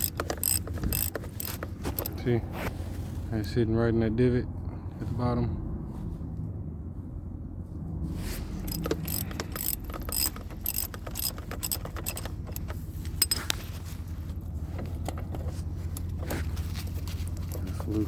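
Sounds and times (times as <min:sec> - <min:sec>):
ratchet wrench clicking: 0:00.0 - 0:02.2, 0:08.7 - 0:13.6.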